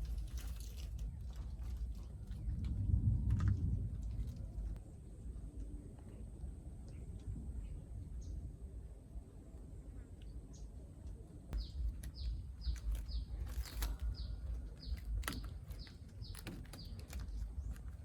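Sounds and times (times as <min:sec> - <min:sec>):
steady low rumble: 0:00.0 - 0:18.0
bird chirping: 0:11.6 - 0:18.0.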